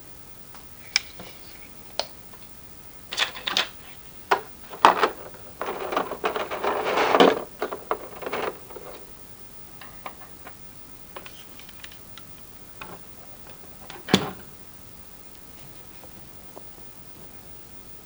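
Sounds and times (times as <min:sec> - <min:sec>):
packaging rustling: 0:03.2 - 0:12.2.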